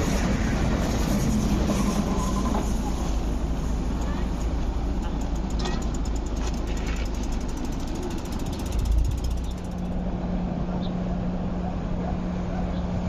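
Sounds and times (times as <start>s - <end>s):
electric train approaching: 0.0s - 12.0s
rapid fine clicking: 4.9s - 10.0s.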